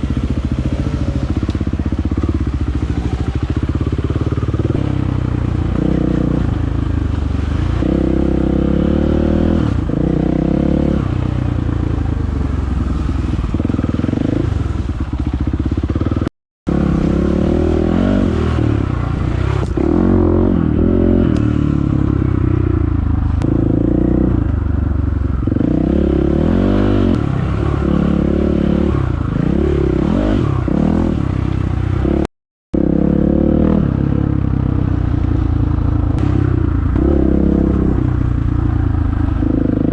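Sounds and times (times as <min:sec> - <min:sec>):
dirt bike engine revving: 0:00.0 - 0:24.6, 0:25.4 - 0:39.9.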